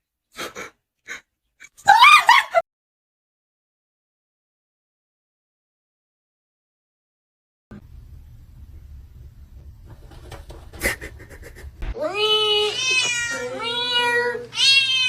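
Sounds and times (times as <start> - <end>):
low hum: 7.7 - 12.2
cat meowing: 12.0 - 15.0.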